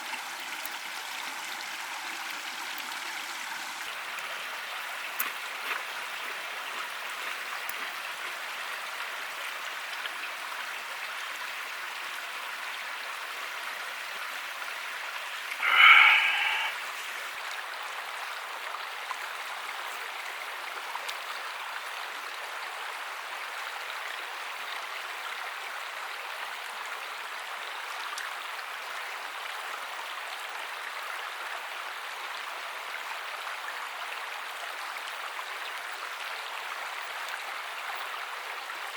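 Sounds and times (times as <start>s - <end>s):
stream rushing: 14.2s - 18.1s
short loud pitched call: 15.6s - 17.0s.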